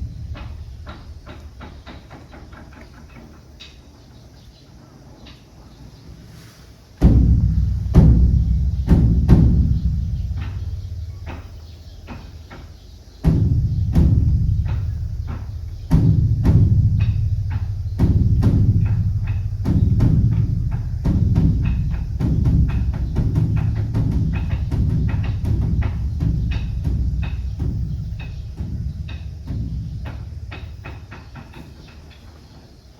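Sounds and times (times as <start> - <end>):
deep booming drum strokes: 0.0 - 3.2, 6.9 - 32.2.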